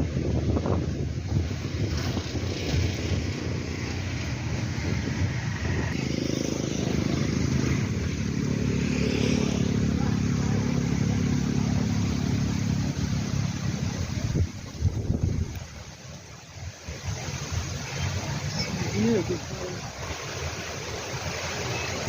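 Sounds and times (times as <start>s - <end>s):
wind noise on microphone: 0.0s - 22.0s
motor engine droning: 1.3s - 15.3s.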